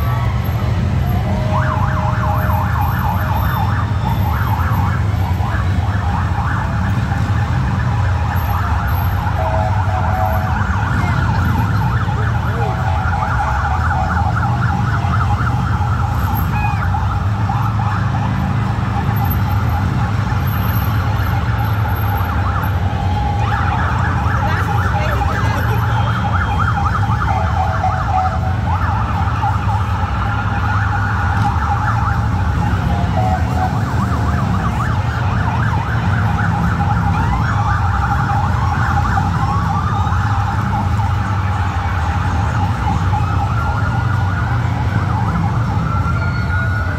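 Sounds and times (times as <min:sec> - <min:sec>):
motorcycle engines rumbling: 0:00.0 - 0:46.9
police motorcycle sirens wailing: 0:00.0 - 0:46.9.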